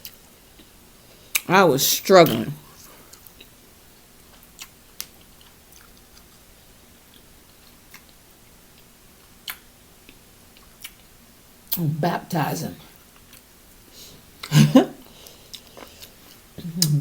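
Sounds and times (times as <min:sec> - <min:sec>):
chewing seafood: 0:04.2 - 0:11.1, 0:14.4 - 0:17.0.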